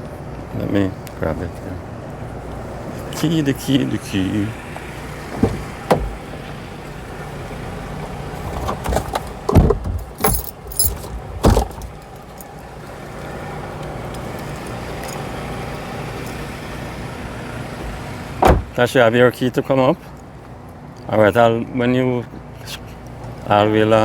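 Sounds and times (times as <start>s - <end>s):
car hum: 0.0s - 24.0s
keys jangling: 9.9s - 12.6s, 14.6s - 16.5s.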